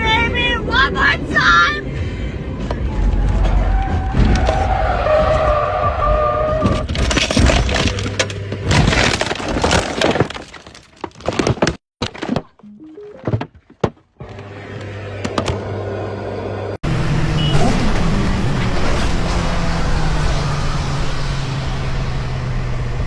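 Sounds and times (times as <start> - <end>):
cracking and breaking impacts: 6.6 - 12.5.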